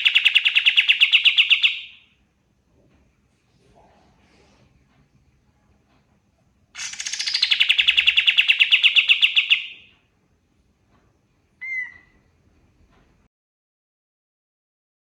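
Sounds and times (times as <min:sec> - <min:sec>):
songbird fast trill: 0:06.8 - 0:09.9.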